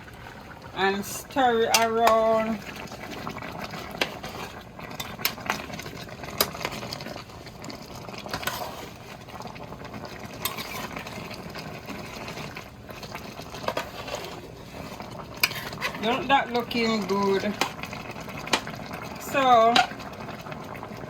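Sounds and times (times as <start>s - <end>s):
pot of gravy bubbling: 0.0s - 21.0s.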